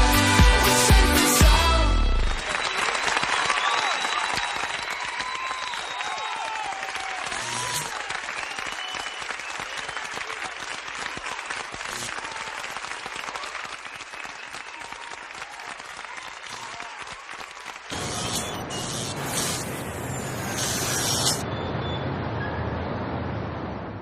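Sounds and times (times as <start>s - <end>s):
audience applauding: 2.2s - 18.6s
faint whistles: 2.4s - 4.8s, 5.6s - 6.4s, 8.3s - 10.2s, 13.8s - 14.8s.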